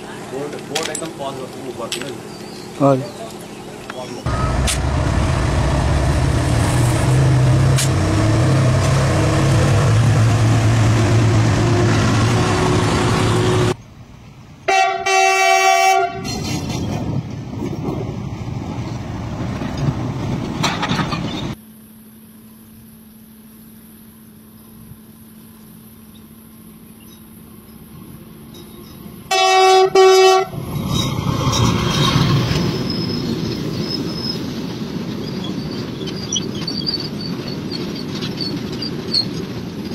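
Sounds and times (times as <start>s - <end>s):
diesel locomotive droning: 0.0s - 21.9s, 25.0s - 39.9s
train horn blasts: 14.7s - 16.4s, 29.3s - 30.6s.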